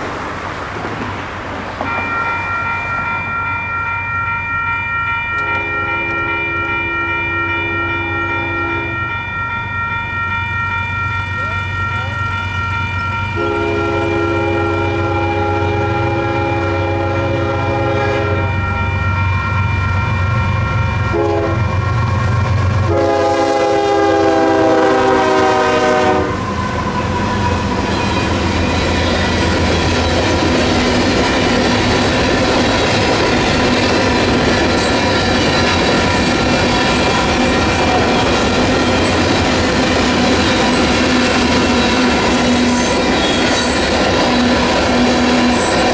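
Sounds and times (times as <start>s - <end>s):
train wheels clattering on rails: 0.0s - 7.7s, 9.0s - 45.9s
crossing bells ringing: 0.0s - 45.9s
train horn blasts: 5.4s - 9.2s, 13.3s - 18.9s, 20.8s - 22.0s, 22.8s - 27.1s.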